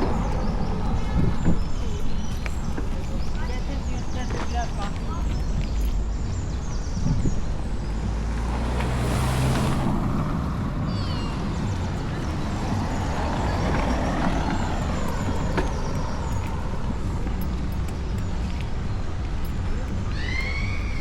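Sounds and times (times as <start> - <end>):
bicycle tyres on track: 0.0 - 21.0
wind rumble on microphone: 0.0 - 21.0
high squeaks: 19.4 - 21.0.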